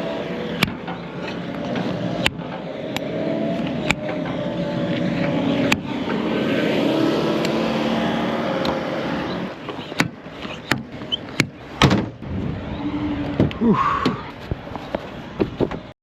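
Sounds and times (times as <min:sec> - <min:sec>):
truck engine drone in cab: 0:00.0 - 0:15.8
sharp clicks and knocks: 0:00.6 - 0:06.3, 0:09.6 - 0:12.2.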